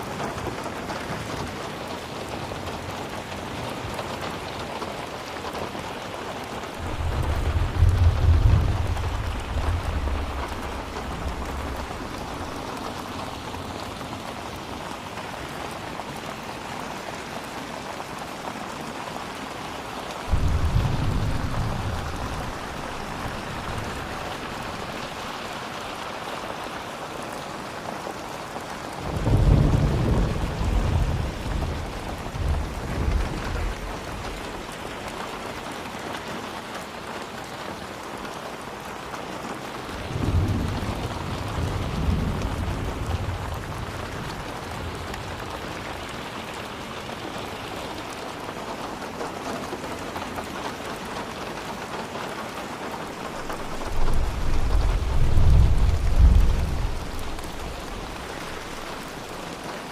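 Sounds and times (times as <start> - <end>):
heavy rain hissing: 0.0 - 59.9
thunder rumbling low: 6.6 - 14.3, 20.2 - 25.6, 29.0 - 34.7, 39.9 - 47.2, 53.3 - 59.4.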